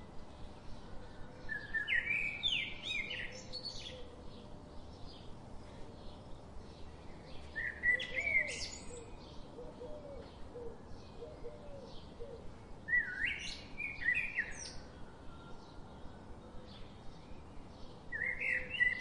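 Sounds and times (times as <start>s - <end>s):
faint bird chirping: 0.0s - 19.0s
loud whistled bird song: 1.5s - 4.1s, 7.4s - 9.3s, 12.9s - 16.1s, 18.1s - 19.0s.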